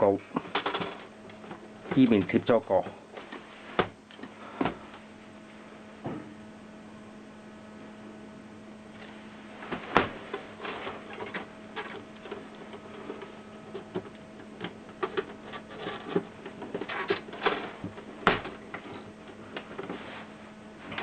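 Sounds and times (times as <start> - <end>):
mains hum: 0.0 - 21.0.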